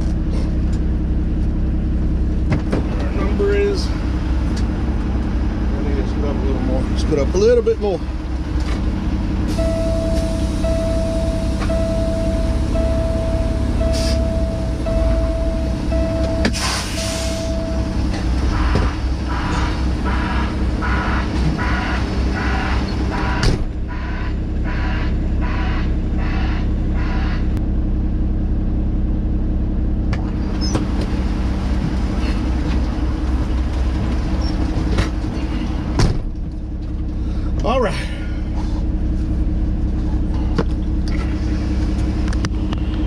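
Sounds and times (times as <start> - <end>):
diesel truck engine idling: 0.0 - 43.0
interrupted beeping tone: 9.5 - 19.7.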